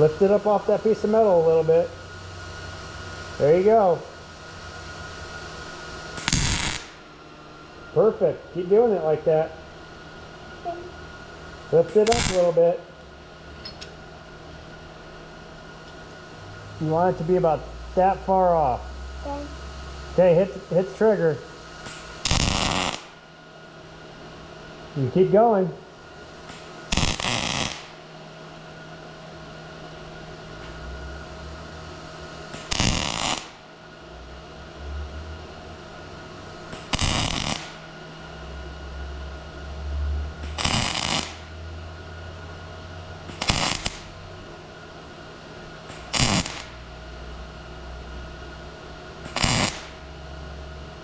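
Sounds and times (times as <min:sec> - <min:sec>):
welder arc crackling: 0:00.0 - 0:07.1, 0:07.8 - 0:15.2, 0:19.8 - 0:23.2, 0:26.4 - 0:28.9, 0:30.5 - 0:33.8, 0:36.0 - 0:39.8, 0:40.4 - 0:51.0
steady low hum: 0:00.0 - 0:51.0.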